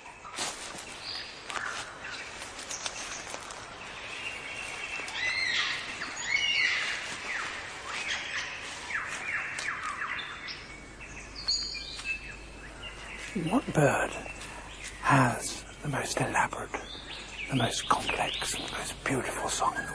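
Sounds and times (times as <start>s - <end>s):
birds singing: 0.0s - 19.9s.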